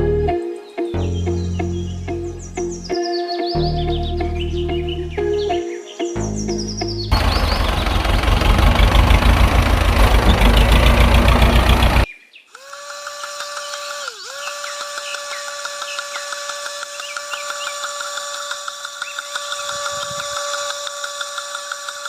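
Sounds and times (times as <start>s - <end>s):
electric motor rattling and whining: 7.1s - 12.1s.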